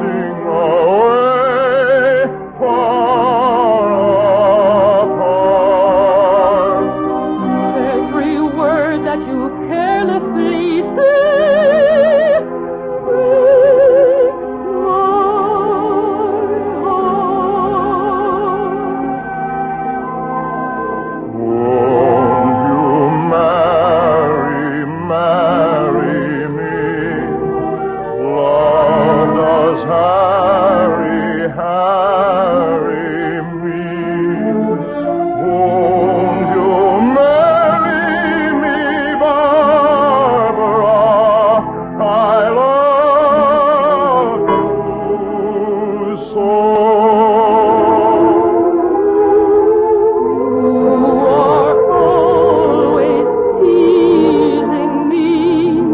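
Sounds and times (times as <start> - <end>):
operatic singing with vibrato: 0.0 - 55.9
orchestra playing: 0.0 - 55.9.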